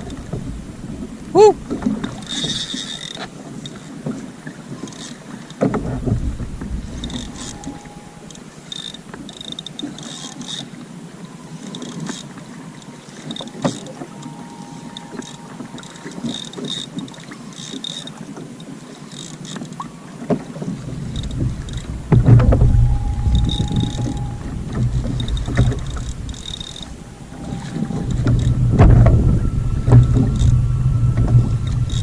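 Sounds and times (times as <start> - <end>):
wind rumbling on microphone: 5.6 - 9.1, 20.3 - 32.0.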